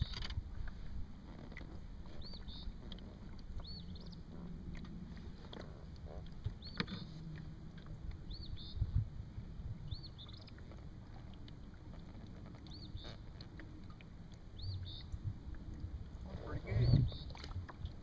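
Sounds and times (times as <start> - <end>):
low rumble of wind and water: 0.0 - 18.0
bird calling: 16.2 - 17.4.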